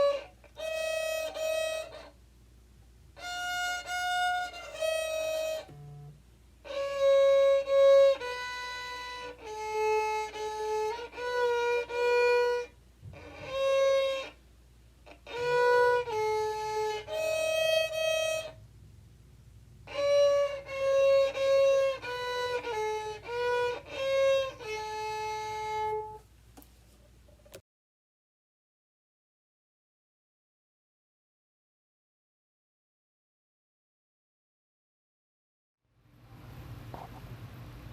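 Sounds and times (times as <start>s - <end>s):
solo violin slow melody: 0.0s - 2.2s, 3.1s - 18.6s, 19.8s - 26.3s.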